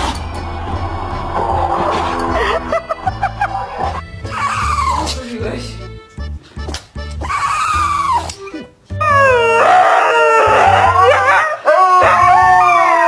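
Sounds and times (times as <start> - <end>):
music with heavy bass beat: 0.0 - 4.9
dog howling: 0.0 - 5.1, 9.0 - 13.0.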